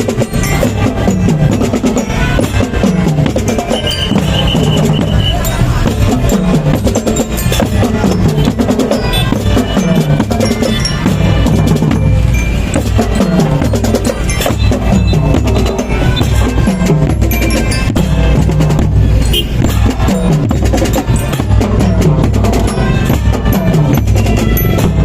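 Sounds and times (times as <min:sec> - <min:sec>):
drums beating fast: 0:00.0 - 0:25.0
marching band playing: 0:00.0 - 0:25.0.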